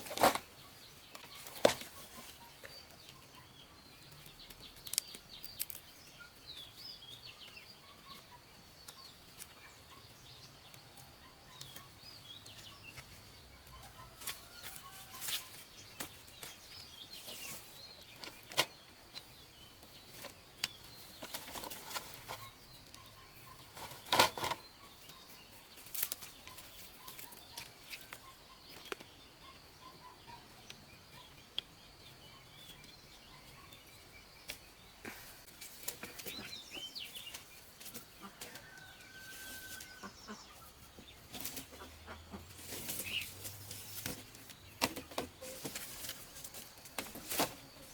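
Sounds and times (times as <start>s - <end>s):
faint bird chirps: 0.5s - 37.7s
rustling: 42.5s - 47.9s.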